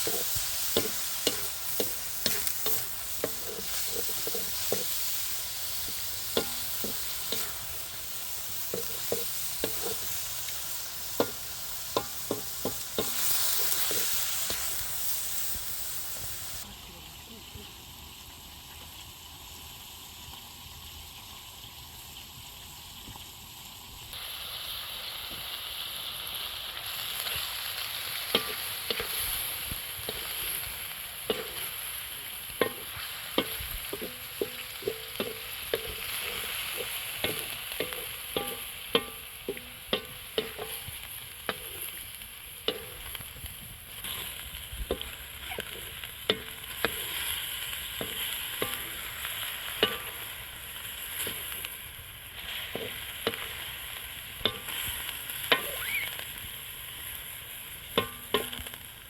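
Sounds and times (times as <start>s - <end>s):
spoon scraping a pan: 0.0s - 16.6s, 28.3s - 43.4s, 44.0s - 50.3s, 52.4s - 53.6s, 54.4s - 56.2s
food sizzling in a pan: 0.0s - 59.0s.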